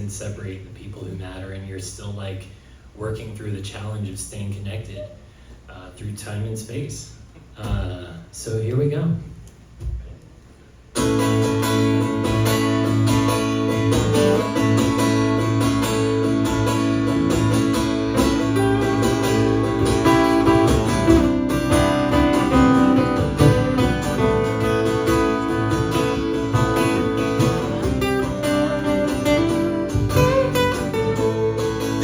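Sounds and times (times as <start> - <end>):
acoustic guitar strumming: 11.0 - 32.0.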